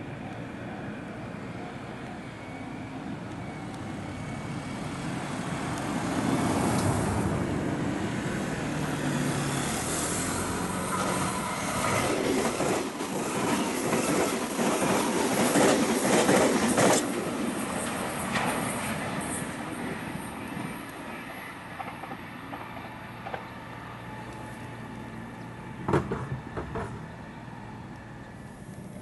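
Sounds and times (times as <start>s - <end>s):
electric train passing: 0.0s - 29.0s
wheels clacking over rail joints: 25.8s - 27.2s.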